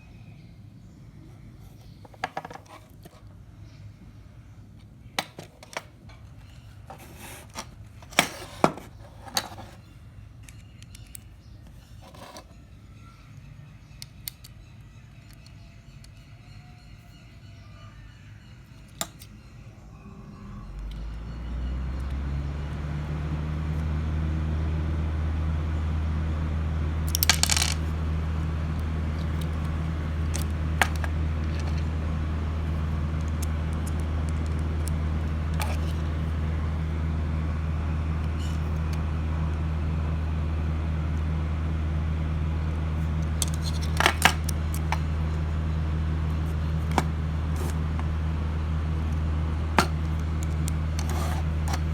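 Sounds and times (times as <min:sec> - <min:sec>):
steady low hum: 0:00.0 - 0:51.9
small metallic clicks: 0:10.4 - 0:12.4, 0:14.0 - 0:14.6, 0:43.2 - 0:45.1.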